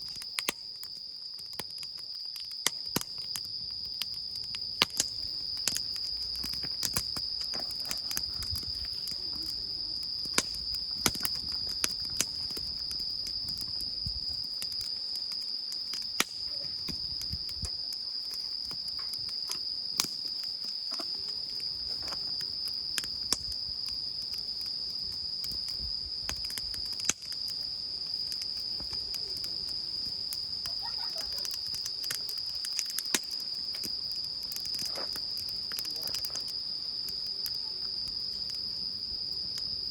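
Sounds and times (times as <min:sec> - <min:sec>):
crickets chirping: 0:00.0 - 0:39.9
sharp clicks and pops: 0:04.0 - 0:09.6, 0:10.2 - 0:13.0, 0:18.8 - 0:21.4.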